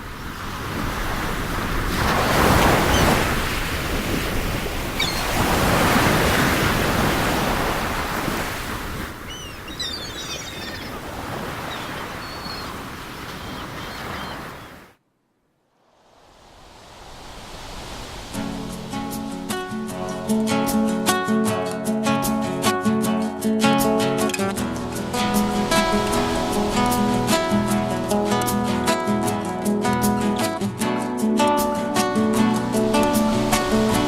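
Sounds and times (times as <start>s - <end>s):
sea waves breaking: 0.0s - 15.0s, 15.8s - 21.6s, 23.8s - 34.0s
faint high chirps: 9.3s - 11.0s.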